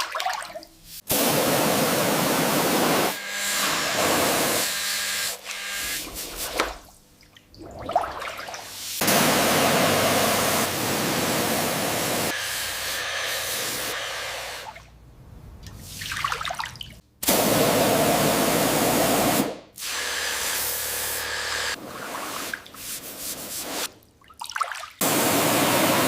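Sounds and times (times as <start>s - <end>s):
spray hissing: 8.7s - 14.7s.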